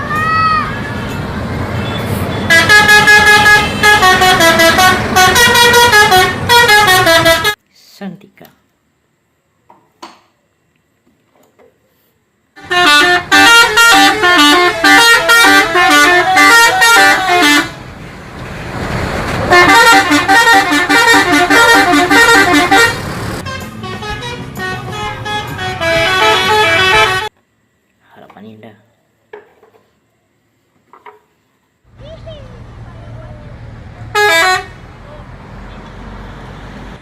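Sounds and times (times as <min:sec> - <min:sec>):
bus musical horn playing tune: 0:02.4 - 0:07.6, 0:12.6 - 0:17.8, 0:19.5 - 0:27.3, 0:34.1 - 0:34.8.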